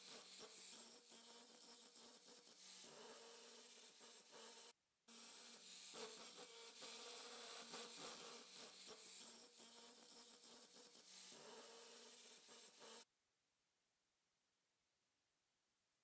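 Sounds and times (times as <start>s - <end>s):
welding arc buzzing crackle: 5.3s - 13.0s.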